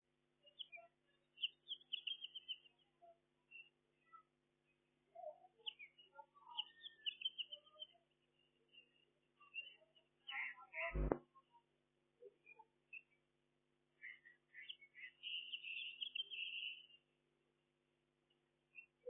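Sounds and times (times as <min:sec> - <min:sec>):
small birds chirping: 0:00.4 - 0:17.5, 0:18.2 - 0:19.0
faint low hum: 0:10.8 - 0:11.2.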